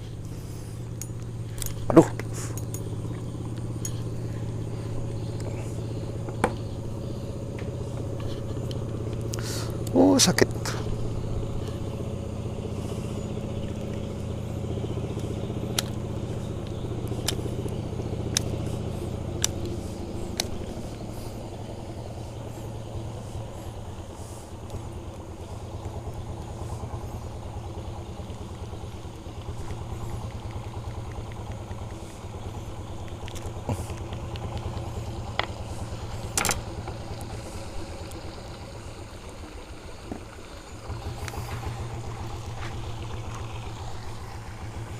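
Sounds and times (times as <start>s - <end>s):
motor engine droning: 0.0s - 44.9s
sharp clicks: 15.2s - 20.8s.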